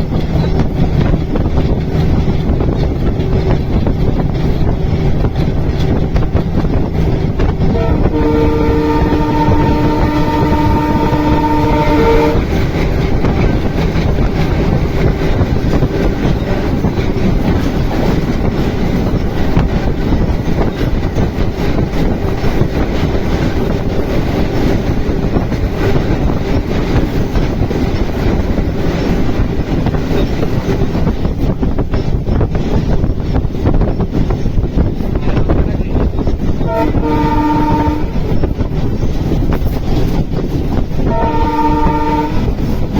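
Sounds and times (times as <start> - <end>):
train rumbling along track: 0.0 - 42.9
train horn: 7.6 - 15.2, 36.6 - 38.6, 41.0 - 42.9.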